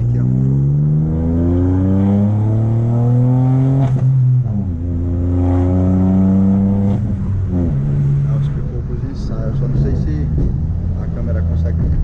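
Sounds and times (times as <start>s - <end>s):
car engine accelerating: 0.0s - 12.0s
exhaust pop: 9.6s - 11.0s.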